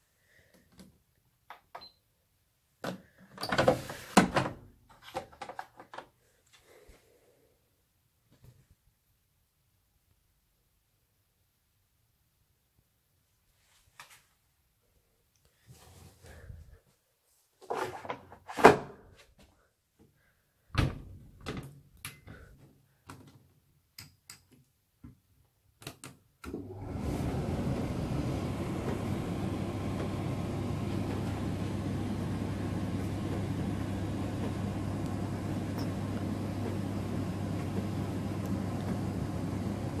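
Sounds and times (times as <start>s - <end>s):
washing machine humming and rushing: 26.5s - 40.0s.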